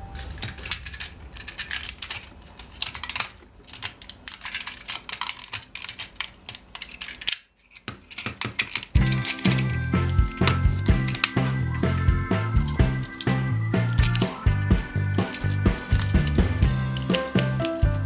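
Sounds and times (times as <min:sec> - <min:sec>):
plastic toys clicking and tapping: 0:00.1 - 0:18.0
music: 0:09.0 - 0:18.0.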